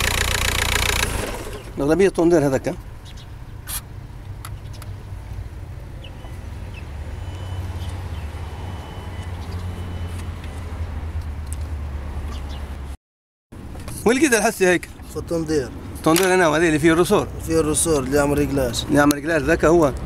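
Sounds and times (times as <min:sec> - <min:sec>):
diesel engine idling: 0:00.0 - 0:02.1.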